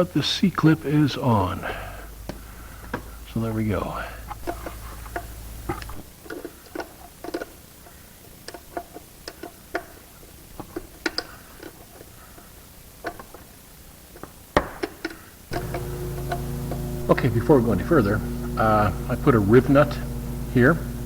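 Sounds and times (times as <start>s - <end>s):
hand tools clicking and tapping: 4.3s - 13.5s, 14.1s - 17.8s.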